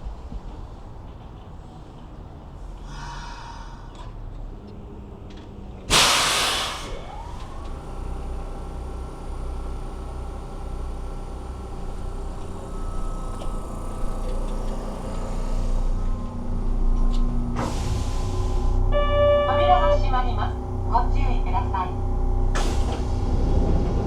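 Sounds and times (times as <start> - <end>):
train low rumble: 0.0 - 24.0
air brake hiss: 5.9 - 7.3, 17.6 - 18.8, 22.6 - 23.3
electric train drive whine: 6.8 - 24.0.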